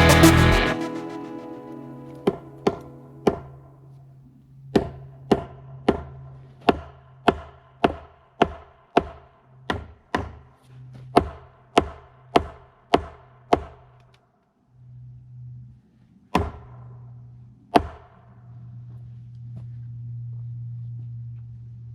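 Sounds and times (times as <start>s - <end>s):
hammer striking nails: 4.8s - 10.4s, 11.2s - 13.8s.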